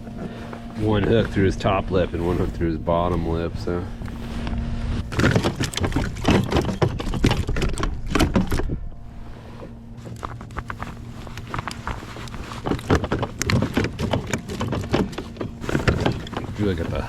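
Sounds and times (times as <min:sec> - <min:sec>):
knocks clicks and rattles: 0:05.0 - 0:08.8, 0:10.0 - 0:17.0.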